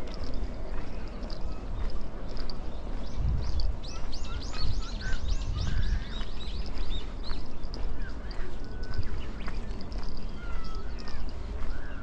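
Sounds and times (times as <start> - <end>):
small bird calling high notes: 10.3 - 12.0.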